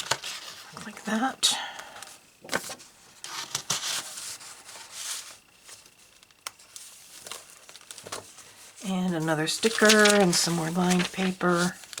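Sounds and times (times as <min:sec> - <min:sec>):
paper rustling: 0:02.5 - 0:12.0.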